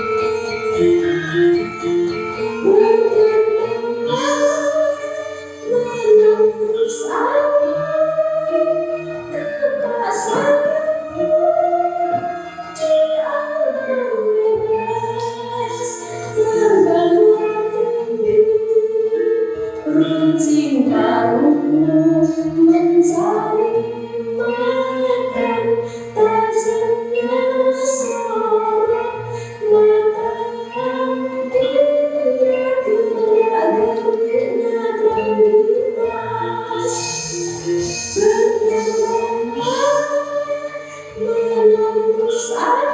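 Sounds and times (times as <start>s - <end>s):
gamelan ensemble: 0.0s - 42.9s
voices singing long melody: 32.8s - 42.9s.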